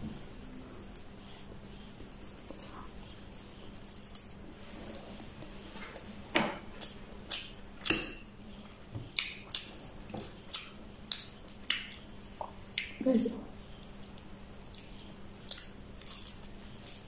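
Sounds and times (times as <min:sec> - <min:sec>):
chewing and mouth smacking: 0:00.9 - 0:03.0, 0:09.1 - 0:13.0, 0:14.1 - 0:17.0.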